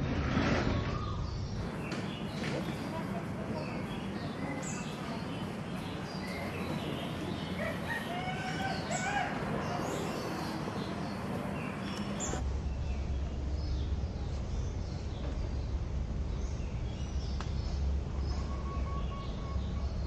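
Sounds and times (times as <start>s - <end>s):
birds chirping: 0.4s - 20.0s
rooster crowing: 7.6s - 9.5s
steady low rumble: 11.0s - 18.5s.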